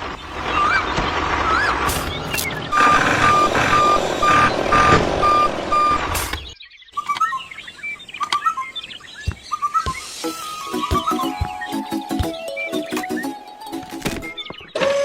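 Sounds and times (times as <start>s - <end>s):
vehicle engine: 1.5s - 6.4s
reversing alarm beeping: 2.7s - 6.3s
high chirping calls: 6.3s - 14.8s.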